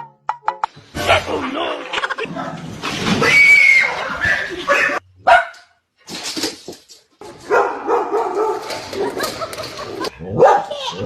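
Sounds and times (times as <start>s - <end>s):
dog barking: 4.9s - 5.7s, 7.4s - 9.2s, 10.3s - 10.9s.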